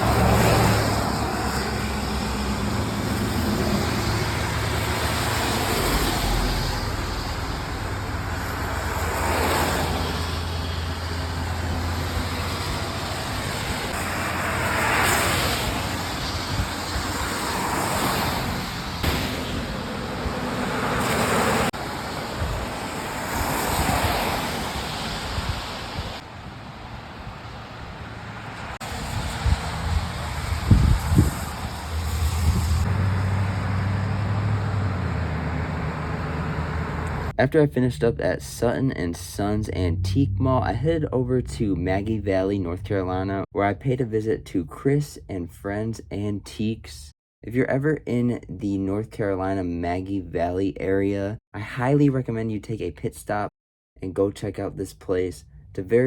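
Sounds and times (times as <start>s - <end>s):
low engine hum: 0.0s - 14.4s, 26.8s - 43.1s
vehicles passing: 0.0s - 43.5s.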